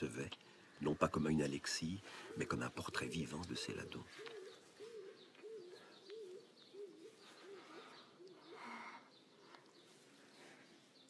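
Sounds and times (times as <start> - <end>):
low rising and falling bird call: 0.7 - 11.0
faint high bird chirps: 2.4 - 11.0.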